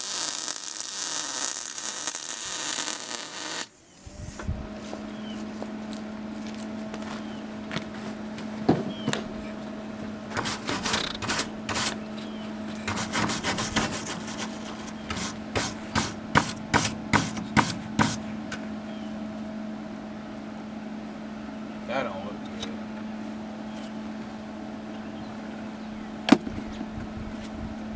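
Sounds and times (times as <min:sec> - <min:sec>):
steady hum: 0:00.0 - 0:07.6
hand scraping strokes: 0:10.3 - 0:12.0, 0:12.9 - 0:18.2.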